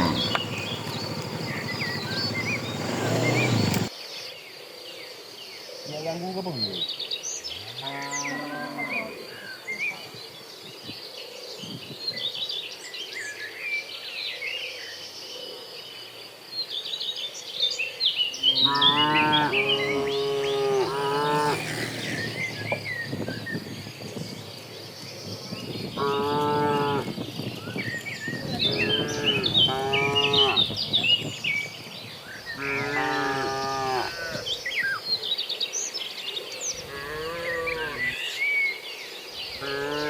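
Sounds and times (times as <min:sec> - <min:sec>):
birds chirping: 0:00.0 - 0:03.9, 0:18.1 - 0:40.0
cattle mooing: 0:00.0 - 0:03.9, 0:18.5 - 0:22.8, 0:26.0 - 0:27.1, 0:28.8 - 0:30.7
insect buzz: 0:00.0 - 0:03.9, 0:18.4 - 0:25.2.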